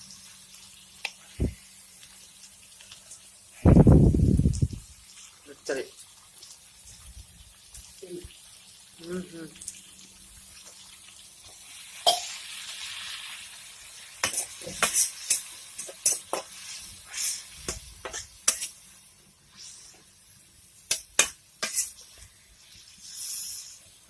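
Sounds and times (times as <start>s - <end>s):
food sizzling in oil: 0.0s - 24.0s
spatula scraping a metal pan: 14.2s - 18.8s, 20.9s - 22.1s.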